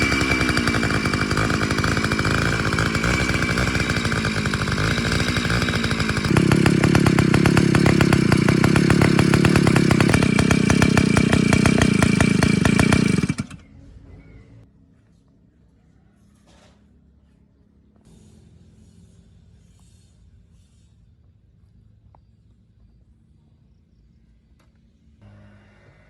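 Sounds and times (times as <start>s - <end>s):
small two-stroke pump engine: 0.0s - 13.8s, 25.2s - 26.0s.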